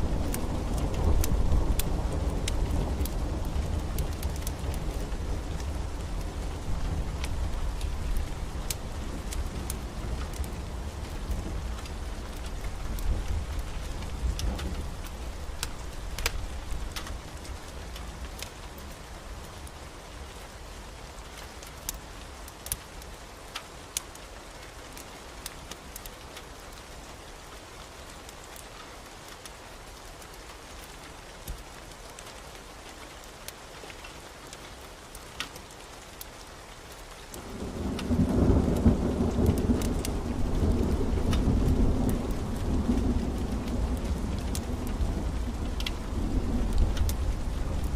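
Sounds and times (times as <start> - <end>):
steady rain: 0.0 - 47.9
thunder rumbling: 37.4 - 47.9.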